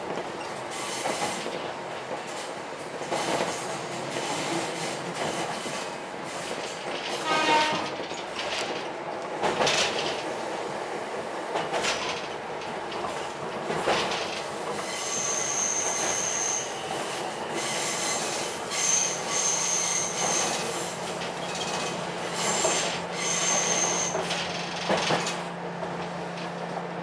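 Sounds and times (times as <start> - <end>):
train running noise: 0.0 - 27.0
train wheels squealing: 14.7 - 24.4.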